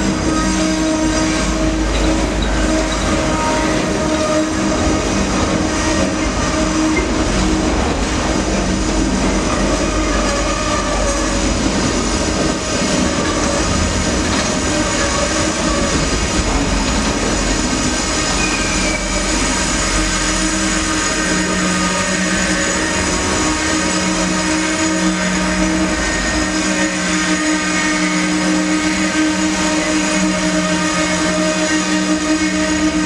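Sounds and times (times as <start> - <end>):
train wheels rumbling on rail: 0.0 - 33.0
faint wheel squeal: 18.3 - 19.5.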